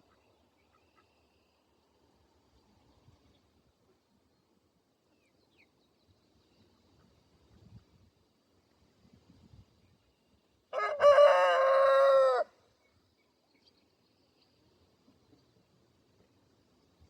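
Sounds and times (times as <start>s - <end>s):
rooster crowing: 10.7s - 12.6s.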